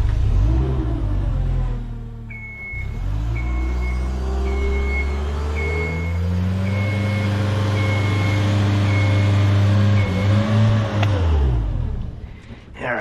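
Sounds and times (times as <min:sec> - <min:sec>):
motion alarm beeping: 0:02.3 - 0:10.3
lift engine running: 0:02.3 - 0:10.7.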